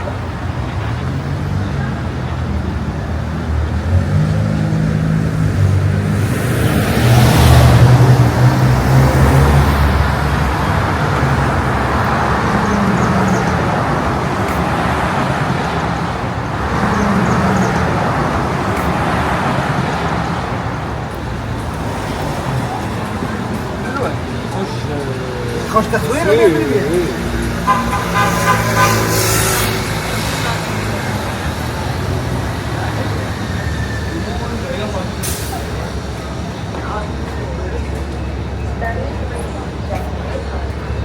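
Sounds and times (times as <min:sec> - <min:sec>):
cars passing: 0:00.0 - 0:41.0
heavy vehicle engine rumbling: 0:00.0 - 0:41.0.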